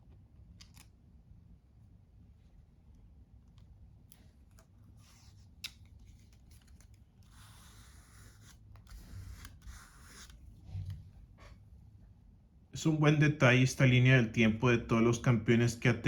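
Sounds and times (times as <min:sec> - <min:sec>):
stickers peeled from backing: 0:04.1 - 0:10.4.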